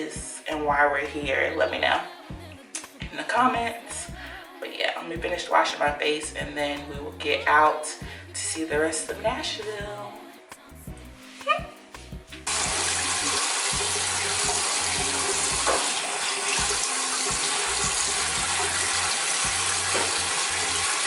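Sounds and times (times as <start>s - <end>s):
tap water running into basin: 12.4s - 21.0s
tap turning on: 15.6s - 18.0s, 19.7s - 20.4s.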